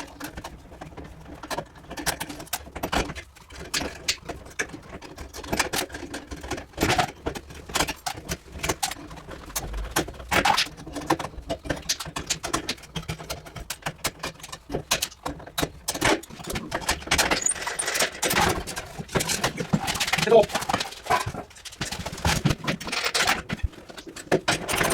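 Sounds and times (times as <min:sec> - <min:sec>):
metal tools clinking: 0:16.9 - 0:18.6, 0:22.8 - 0:23.5.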